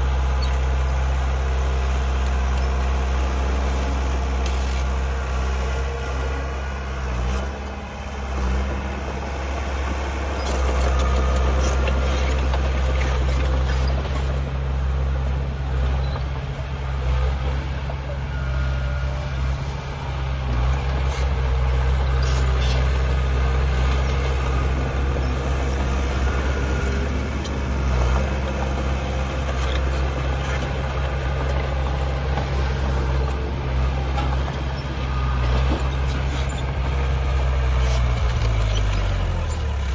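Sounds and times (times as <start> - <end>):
heavy diesel engines humming: 0.0 - 39.9.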